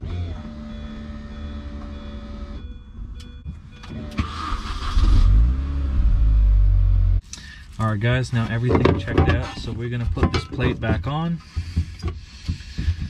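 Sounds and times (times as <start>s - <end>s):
car engine cranking and running: 0.0s - 13.0s.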